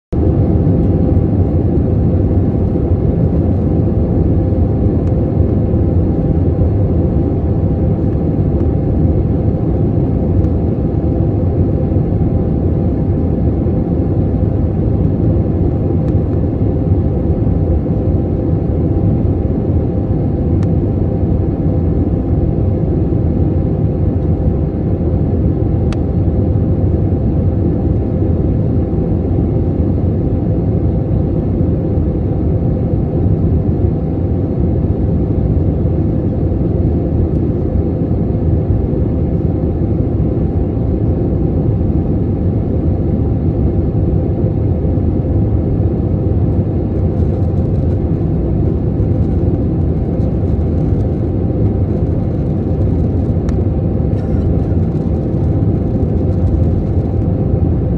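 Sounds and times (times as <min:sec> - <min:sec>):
airplane drone in flight: 0:00.0 - 0:57.9.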